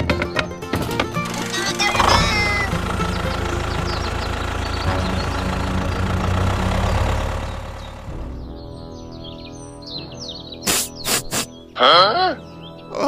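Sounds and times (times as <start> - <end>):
background music: 0.0 - 13.0
low motor hum: 0.7 - 8.9.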